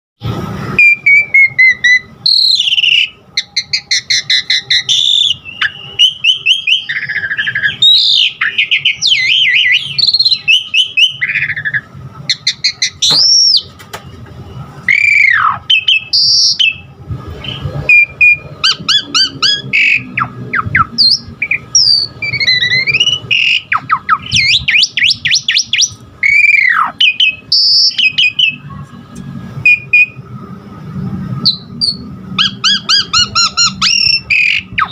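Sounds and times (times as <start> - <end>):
starling singing varied song: 31.4 - 34.9.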